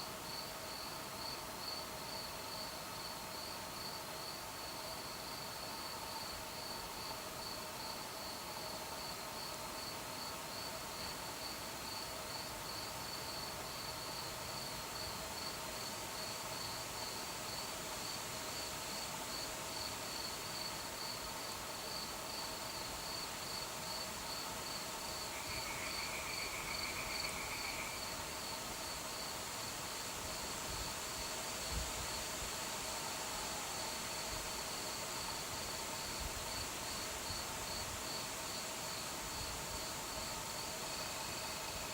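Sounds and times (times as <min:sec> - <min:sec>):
crickets chirping: 0:00.2 - 0:41.9
lower-pitched insect trill: 0:00.3 - 0:32.2.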